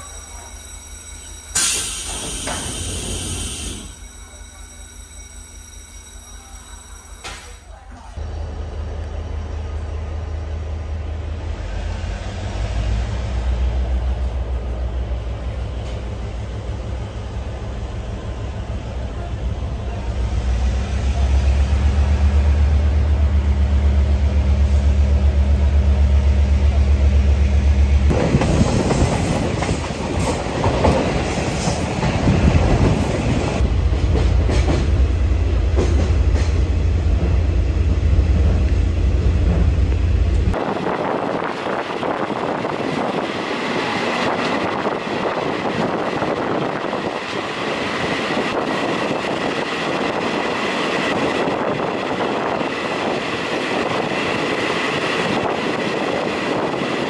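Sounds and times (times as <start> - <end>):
wind through train windows: 7.3 - 57.0
train wheels clattering on rails: 28.1 - 38.8.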